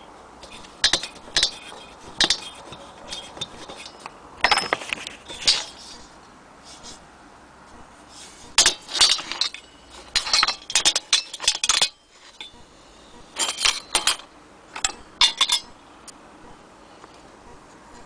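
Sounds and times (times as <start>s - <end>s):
metal stove parts clinking: 0.4s - 5.8s, 8.6s - 12.6s, 13.4s - 15.8s.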